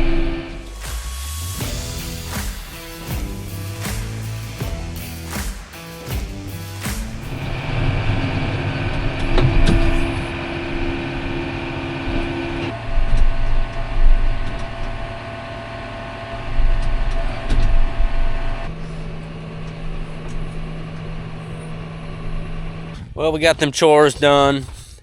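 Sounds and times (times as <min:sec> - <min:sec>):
farm vehicle engines humming: 0:00.0 - 0:23.0
knocks and clanks: 0:08.2 - 0:10.4.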